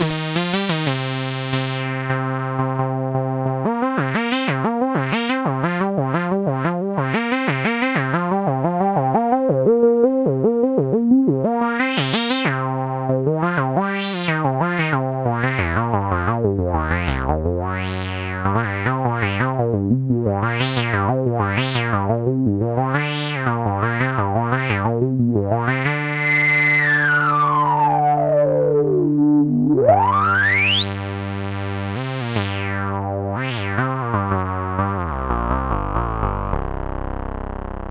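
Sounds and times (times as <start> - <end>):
analog synthesizer notes: 0.0 - 37.9
resonant filter sweep: 13.9 - 36.8.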